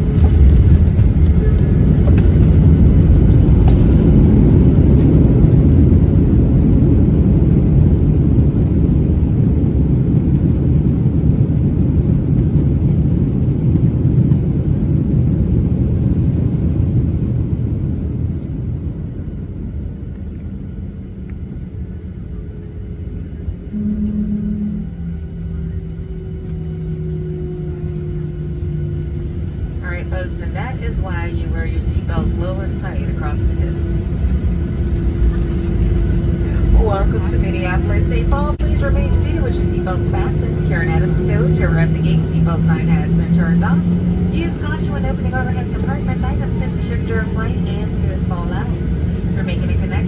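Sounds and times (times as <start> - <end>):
airplane cabin low rumble: 0.0 - 50.0
short steady hum: 23.7 - 29.8.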